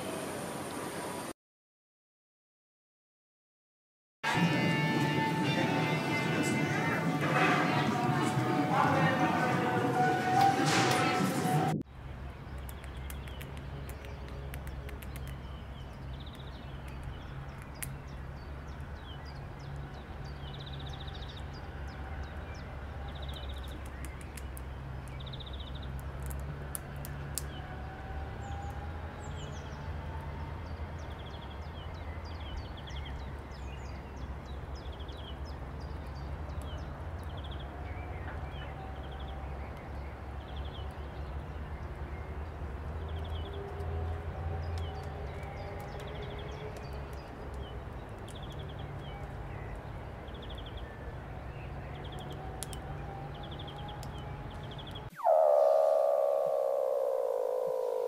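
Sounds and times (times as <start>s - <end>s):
birds chirping: 4.7s - 58.0s
small sharp clicks: 12.5s - 15.5s, 52.0s - 52.9s
whistled bird calls: 53.2s - 58.0s
low rumble: 55.1s - 58.0s.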